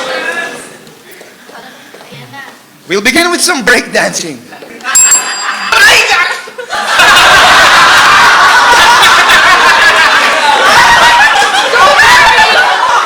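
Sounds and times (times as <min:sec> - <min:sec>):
audience laughing loudly: 0:04.6 - 0:13.0.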